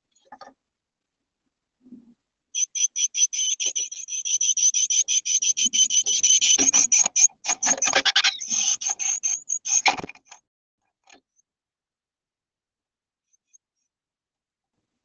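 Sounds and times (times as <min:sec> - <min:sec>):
small bird chattering: 0:02.6 - 0:10.1.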